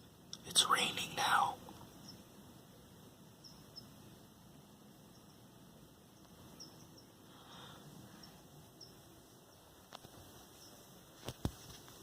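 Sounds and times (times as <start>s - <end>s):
light rain hiss: 0.0s - 12.0s
faint high chirps: 0.8s - 2.4s, 3.3s - 4.2s, 4.9s - 5.5s, 6.1s - 9.7s.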